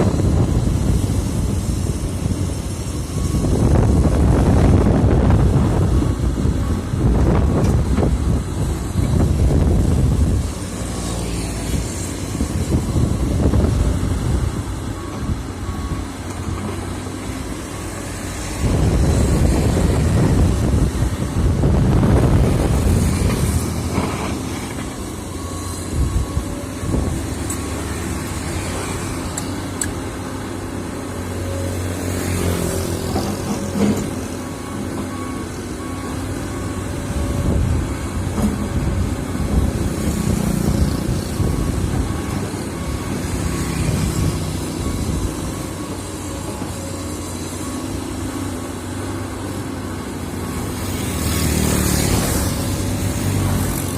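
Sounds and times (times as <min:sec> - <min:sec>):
wind buffeting microphone: 0:00.0 - 0:10.9, 0:11.5 - 0:16.0, 0:18.4 - 0:24.4, 0:25.8 - 0:27.4, 0:36.9 - 0:46.2
heavy machinery diesel engines: 0:00.0 - 0:53.9.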